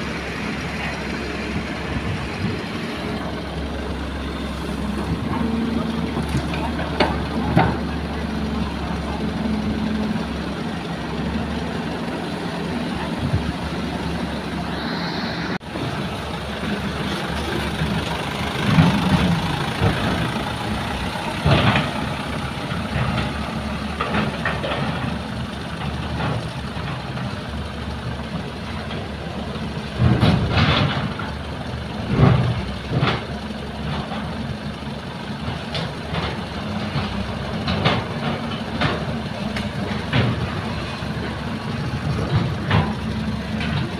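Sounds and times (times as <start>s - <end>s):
heavy diesel engines running: 0.0s - 43.9s.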